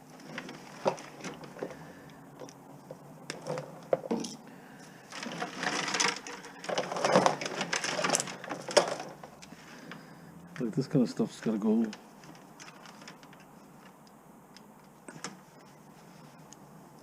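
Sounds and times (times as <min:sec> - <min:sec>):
electronics clattering: 0:05.1 - 0:09.5
plastic and metal pieces rattling: 0:05.1 - 0:09.5, 0:11.4 - 0:13.9.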